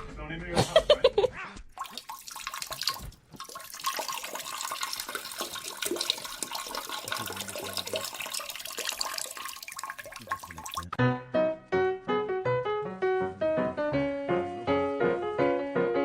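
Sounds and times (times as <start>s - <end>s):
rushing splashing water: 1.8s - 11.0s
piano music: 10.8s - 16.0s.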